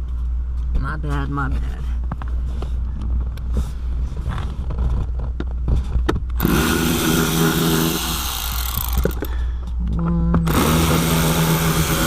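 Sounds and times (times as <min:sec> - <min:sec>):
steady low hum: 0:00.0 - 0:12.0
cordless drill whirring: 0:06.4 - 0:09.4, 0:10.4 - 0:12.0
tool clicks and taps: 0:08.6 - 0:11.0.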